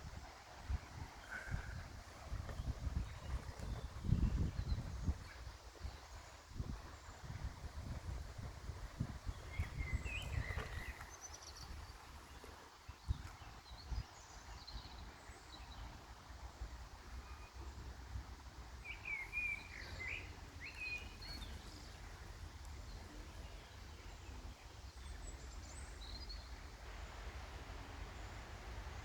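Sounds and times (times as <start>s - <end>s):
small birds chirping: 0.8s - 17.9s, 18.8s - 27.1s.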